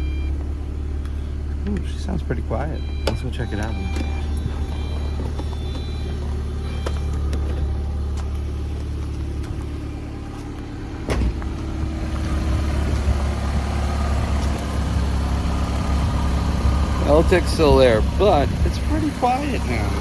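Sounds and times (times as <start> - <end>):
car engine idling with tick: 0.0 - 20.0
engine knock: 11.0 - 20.0.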